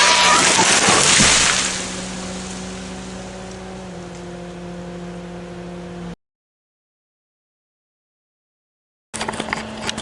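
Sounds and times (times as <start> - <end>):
loud crackling crash: 0.0 - 2.6
engine idling: 1.5 - 6.2.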